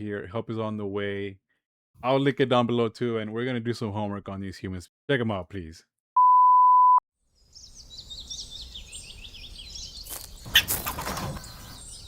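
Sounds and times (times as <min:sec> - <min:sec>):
loud electronic beep: 0:06.2 - 0:07.0
birds chirping: 0:07.4 - 0:12.0.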